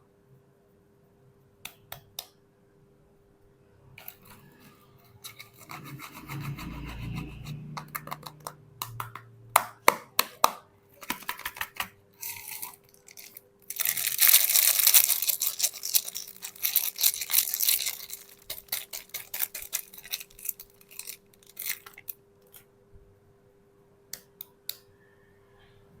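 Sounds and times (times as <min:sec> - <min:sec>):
faint steady hum: 0:00.0 - 0:26.0
packaging tearing: 0:11.0 - 0:22.1
wrapper crinkling: 0:11.0 - 0:22.1.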